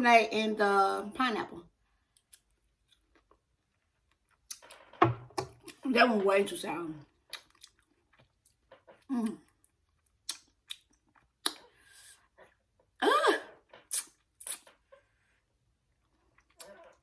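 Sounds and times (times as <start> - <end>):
chewing and lip-smacking: 2.2 - 5.8, 7.1 - 12.6, 16.0 - 17.0
wet mouth clicks: 7.3 - 11.8, 13.8 - 14.8.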